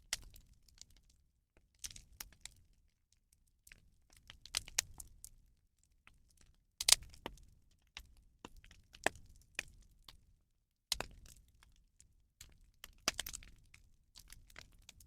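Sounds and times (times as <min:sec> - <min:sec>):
bonfire crackling and popping: 0:12.4 - 0:13.6.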